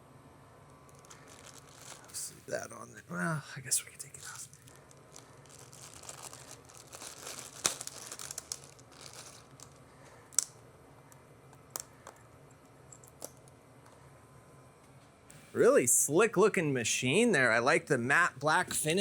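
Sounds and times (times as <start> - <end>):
packaging wrap crinkling and tearing: 0.9 - 2.4, 4.2 - 10.5.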